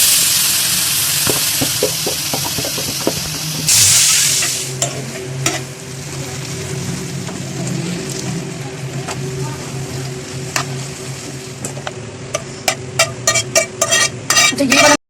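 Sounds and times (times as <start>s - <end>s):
food sizzling in hot oil: 0.0s - 15.0s
spatula tapping a pan: 1.3s - 3.7s, 12.3s - 14.9s.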